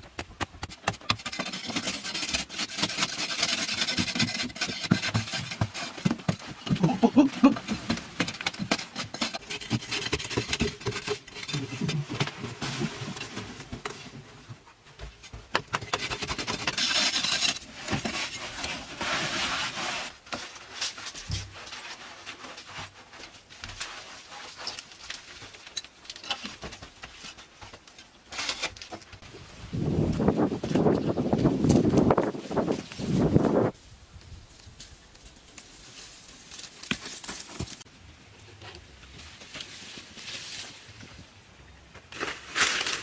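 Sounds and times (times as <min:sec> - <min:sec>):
scraping and rubbing: 0:00.4 - 0:14.4, 0:15.7 - 0:28.8.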